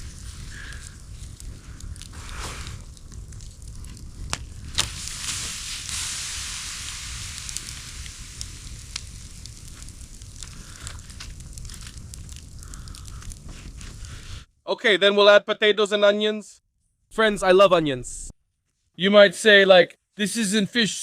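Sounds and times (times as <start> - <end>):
campfire crackling and hissing: 0.0 - 14.5.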